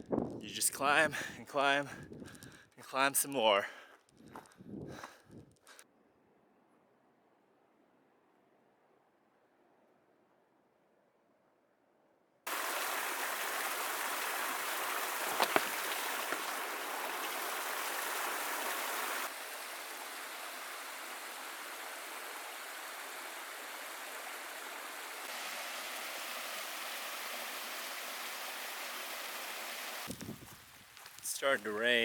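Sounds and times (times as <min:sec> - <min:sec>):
hiss of running water: 0:12.5 - 0:32.0.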